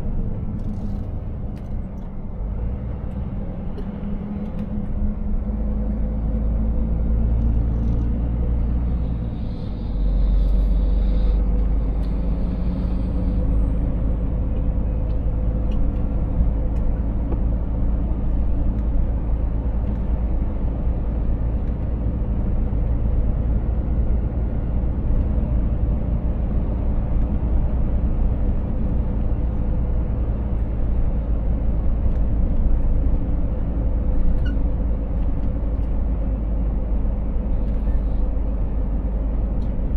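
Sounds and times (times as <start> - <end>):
truck engine and road noise: 0.0 - 39.9.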